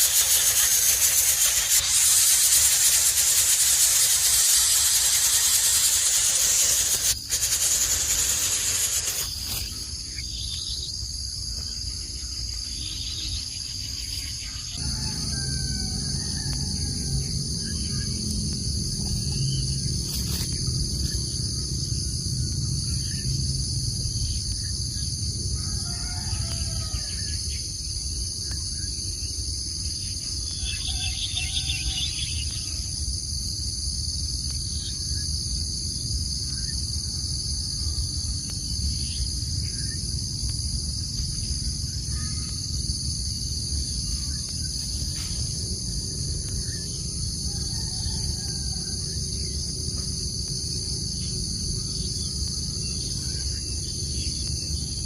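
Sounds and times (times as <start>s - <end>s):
insects chirping: 0.0s - 55.0s
low background rumble: 14.6s - 25.7s, 34.4s - 55.0s.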